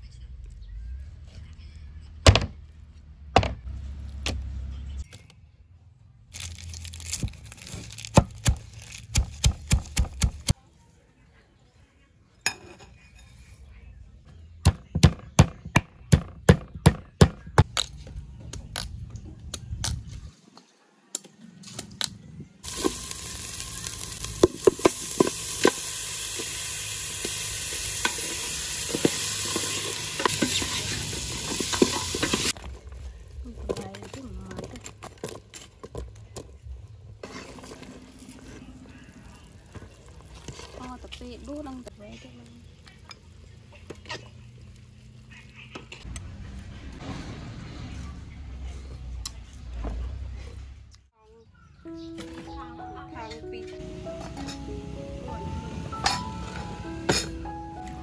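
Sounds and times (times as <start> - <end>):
food sizzling in a hot pan: 22.6 - 32.6.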